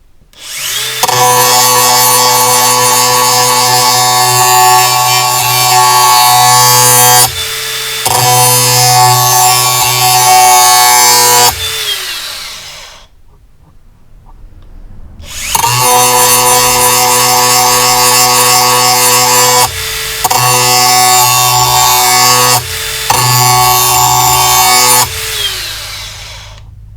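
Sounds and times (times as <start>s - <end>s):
angle grinder grinding steel: 0.4s - 13.1s, 15.2s - 26.7s.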